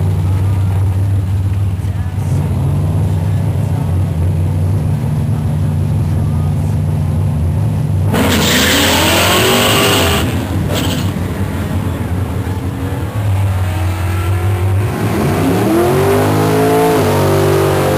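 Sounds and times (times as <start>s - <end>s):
car engine accelerating: 0.0s - 17.9s
tyre noise: 8.1s - 12.1s.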